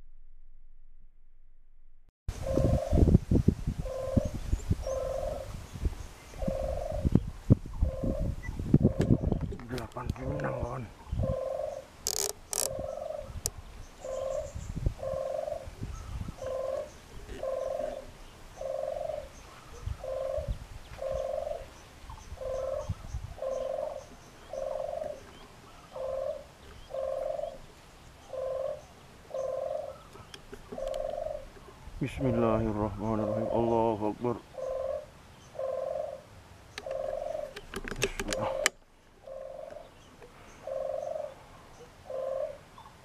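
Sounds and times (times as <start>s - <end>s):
bird hooting: 2.4s - 3.0s, 3.8s - 5.5s, 6.4s - 7.2s, 7.8s - 9.4s, 10.2s - 13.4s, 14.0s - 21.7s, 22.4s - 27.6s, 28.2s - 37.6s, 38.3s - 40.0s, 40.6s - 41.4s, 42.0s - 42.9s
sharp clicks: 12.0s - 12.8s, 36.7s - 38.8s.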